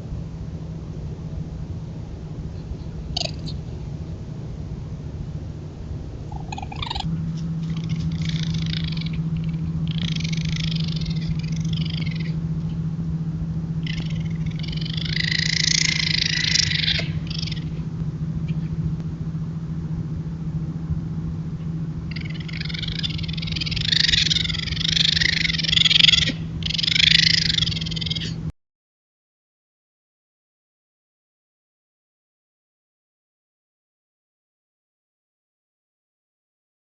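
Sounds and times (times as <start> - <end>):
raccoons making raspy mating noises: 2.6 - 3.9, 6.3 - 12.8, 13.8 - 17.9, 22.1 - 28.5.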